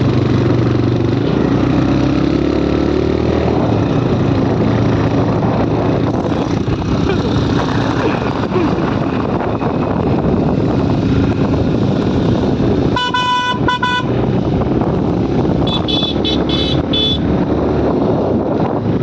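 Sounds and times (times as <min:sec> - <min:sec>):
wind and road noise: 0:00.0 - 0:19.0
vehicle horn: 0:12.9 - 0:14.2, 0:15.6 - 0:17.3
higher-pitched horn toots: 0:13.0 - 0:14.2, 0:15.7 - 0:17.2.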